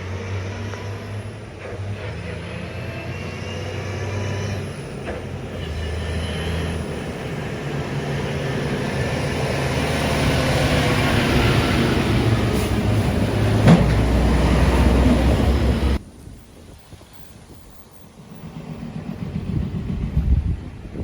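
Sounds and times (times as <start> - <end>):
heavy truck engine running: 0.0 - 16.1, 17.2 - 21.0
road and tyre noise: 0.0 - 21.0.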